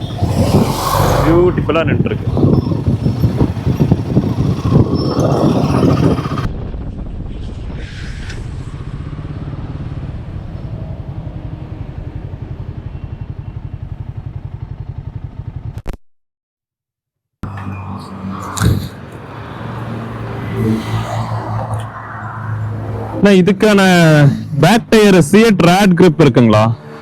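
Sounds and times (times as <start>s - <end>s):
motorcycle engine running: 0.0s - 6.8s, 8.8s - 15.9s.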